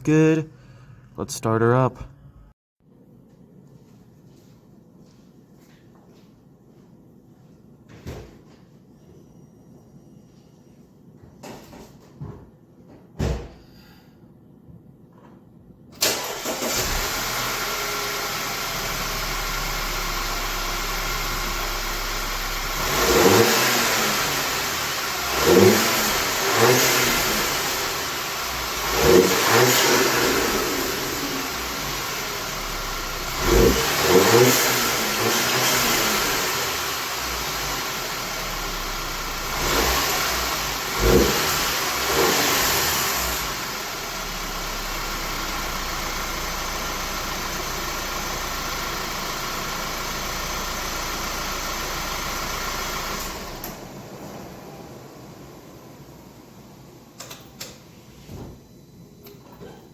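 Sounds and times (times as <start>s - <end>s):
car engine idling and revving: 16.1s - 56.4s.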